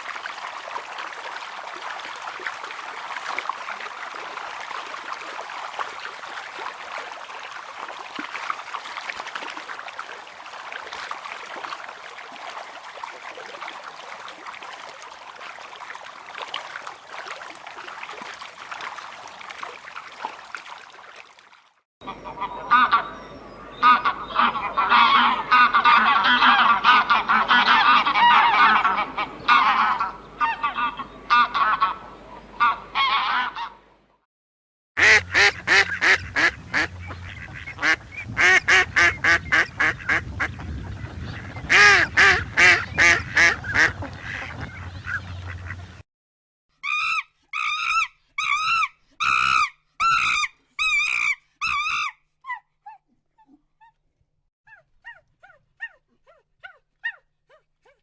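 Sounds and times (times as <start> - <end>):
geese honking: 22.0 - 33.8.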